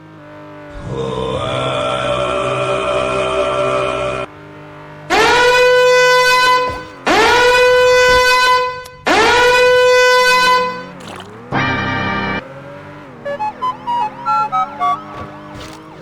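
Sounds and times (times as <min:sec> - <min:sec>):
loud horn blasts: 0:05.1 - 0:12.4.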